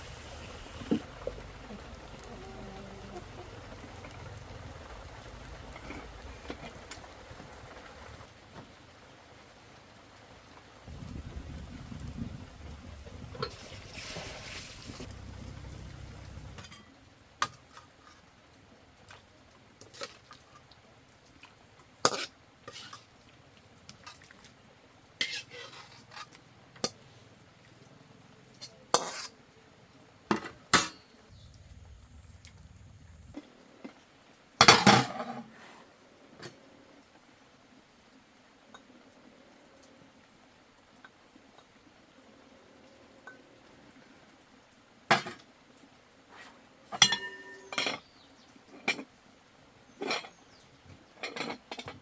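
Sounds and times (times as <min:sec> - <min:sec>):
low rumble: 0:14.8 - 0:16.6.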